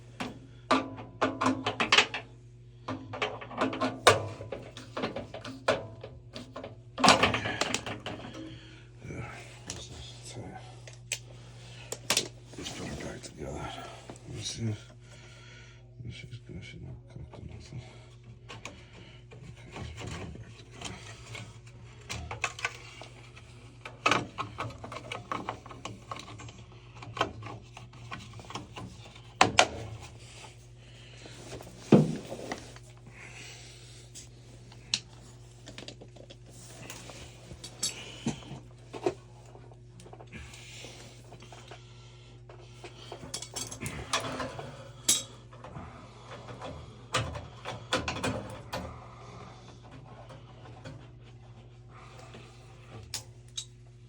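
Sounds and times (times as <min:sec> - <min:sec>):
steady low hum: 0:00.0 - 0:54.0
metal parts clinking and rattling: 0:43.2 - 0:45.4.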